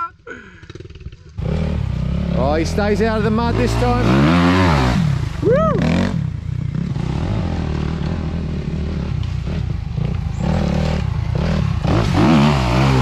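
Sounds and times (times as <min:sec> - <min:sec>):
off-road vehicle engine running: 0:00.5 - 0:13.0.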